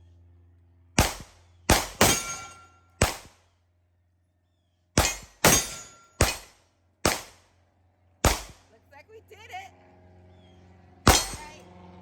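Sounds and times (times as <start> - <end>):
pistol shots: 1.0 - 3.4, 5.0 - 7.4, 8.2 - 8.6, 11.1 - 11.6.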